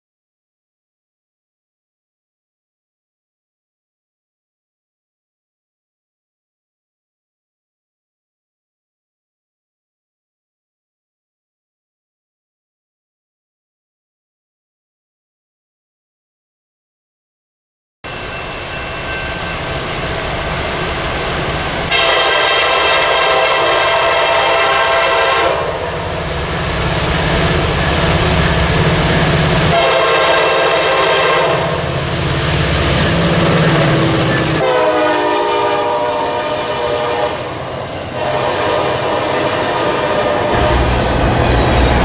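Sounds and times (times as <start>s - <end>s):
rumble of passing train: 18.1s - 42.0s
locomotive horn blasts: 21.9s - 26.0s, 29.6s - 42.0s.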